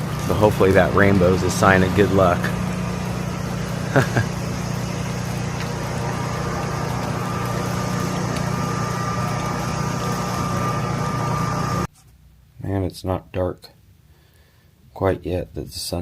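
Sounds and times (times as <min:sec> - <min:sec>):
faint high whine: 0:00.0 - 0:11.9
generator engine running: 0:00.0 - 0:11.9.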